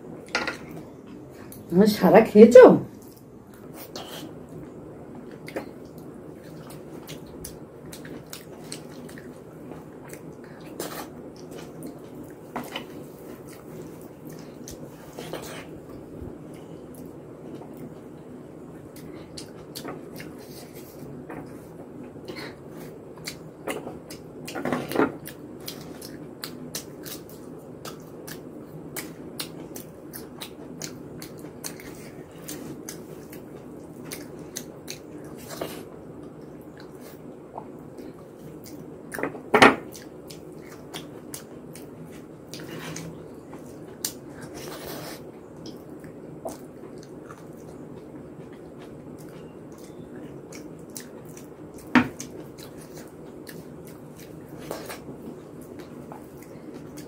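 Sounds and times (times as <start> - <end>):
wet chewing and smacking: 3.0 - 44.8, 45.4 - 57.0.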